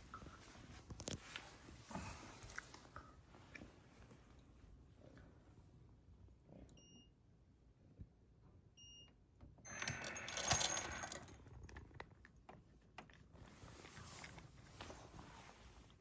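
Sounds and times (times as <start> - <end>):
clattering metallic jingle: 9.9 - 11.4.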